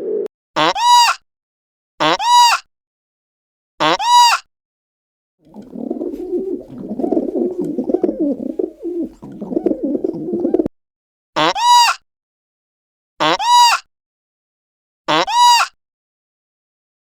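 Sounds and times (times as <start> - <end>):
pigeons cooing: 0.0 - 0.3, 5.5 - 10.7.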